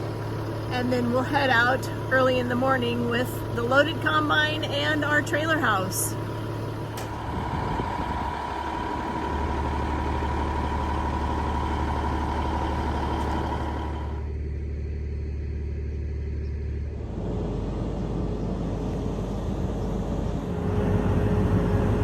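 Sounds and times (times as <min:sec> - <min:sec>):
deep diesel engine hum: 0:00.0 - 0:22.0
thin steady whine: 0:16.1 - 0:22.0.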